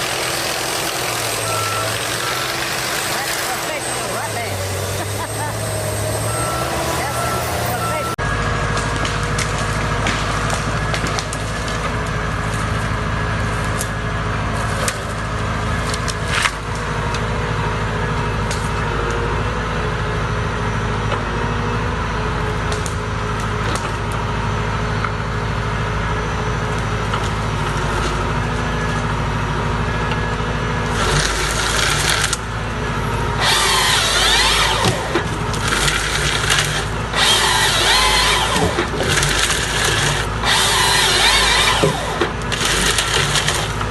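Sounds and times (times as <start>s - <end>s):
chainsaw cutting wood: 0.0s - 8.0s, 30.9s - 32.4s, 33.4s - 43.9s
chainsaw engine running: 0.0s - 8.2s, 30.8s - 32.5s, 33.3s - 43.9s.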